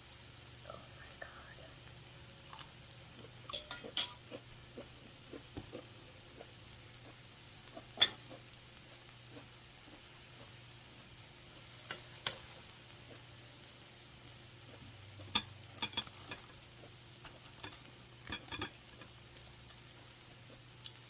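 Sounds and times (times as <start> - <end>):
faint steady hiss: 0.0 - 21.0
chewing and crunching: 2.4 - 11.0, 14.3 - 21.0.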